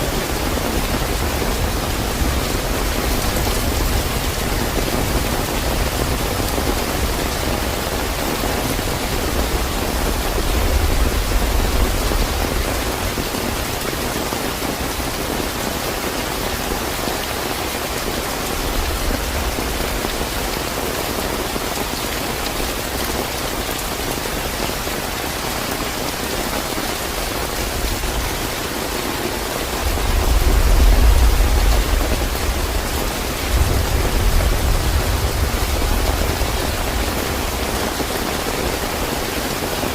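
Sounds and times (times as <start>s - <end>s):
heavy rain falling: 0.0s - 39.9s
distant thunder rumbling: 27.5s - 37.8s.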